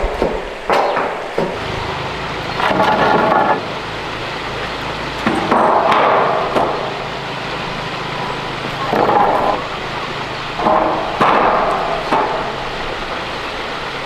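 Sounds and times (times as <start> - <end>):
sharp knocks: 0.0 - 1.6, 5.2 - 6.9, 10.6 - 13.2
noisy scraping: 0.0 - 14.0
steady low hum: 0.0 - 14.0.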